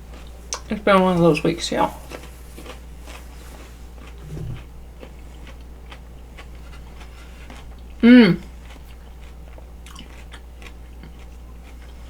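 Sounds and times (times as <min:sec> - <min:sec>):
chewing and biting food: 0:00.0 - 0:12.0
brief low hum: 0:04.2 - 0:04.8.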